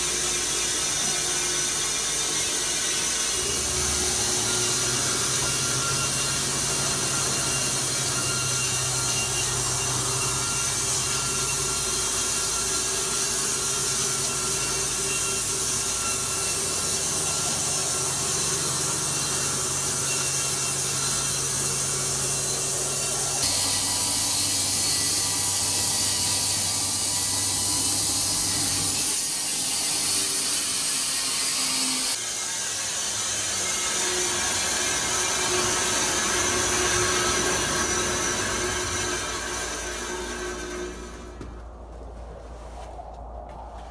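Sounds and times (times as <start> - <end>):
saw cutting wood: 0.0 - 41.8
low machine hum: 34.0 - 43.9.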